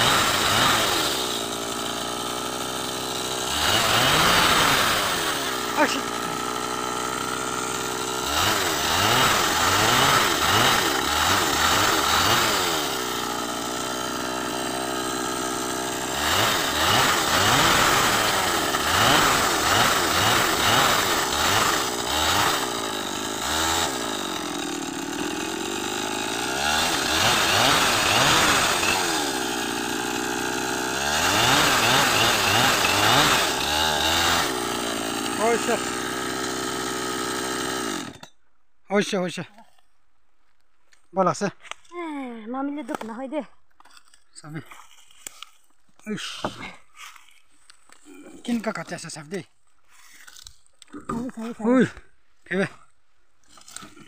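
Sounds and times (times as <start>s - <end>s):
chainsaw engine revving: 0.0s - 38.3s, 46.0s - 49.5s.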